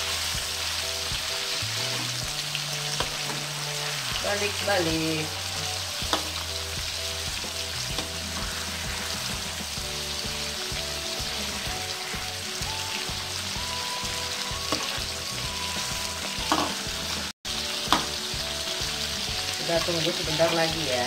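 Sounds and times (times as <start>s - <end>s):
shrimp sizzling in oil: 0.0s - 21.0s
metal spatula knocking pan: 16.5s - 16.8s, 17.9s - 18.2s.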